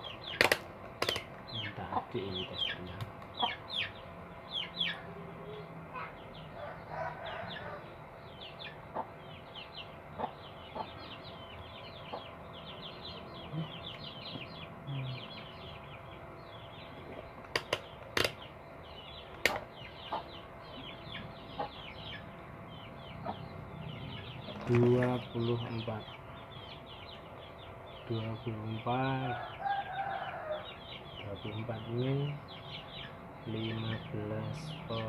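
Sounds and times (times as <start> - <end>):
birds chirping: 0.0 - 35.0
sharp clicks: 0.3 - 1.4, 17.4 - 18.4, 19.3 - 19.7.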